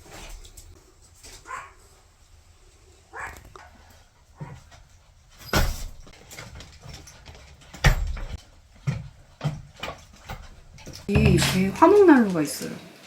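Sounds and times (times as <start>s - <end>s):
small dog making noises: 3.2s - 4.7s
knocks or thumps: 11.1s - 12.0s.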